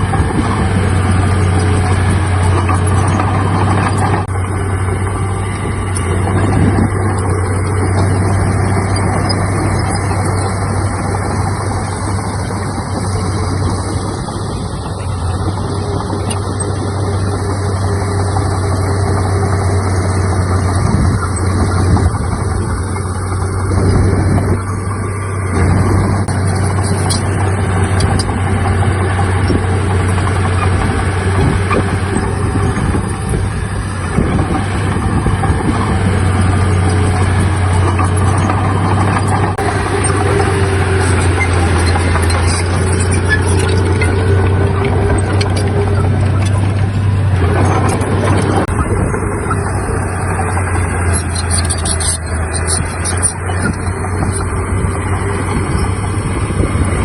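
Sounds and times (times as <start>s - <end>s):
diesel machinery engine drone: 0.0s - 57.0s.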